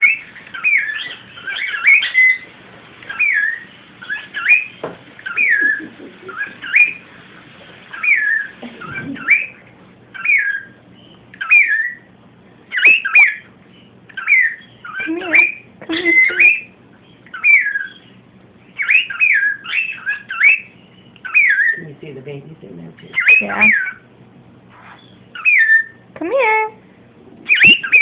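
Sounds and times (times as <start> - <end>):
cockatiel whistling mimicked phrase: 14.3 - 16.7, 23.1 - 24.0, 27.5 - 28.0.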